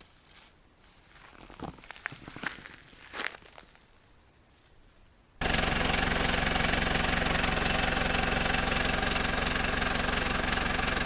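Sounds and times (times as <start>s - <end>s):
faint rustles and crackles: 0.0s - 5.0s
engine running: 5.4s - 11.0s.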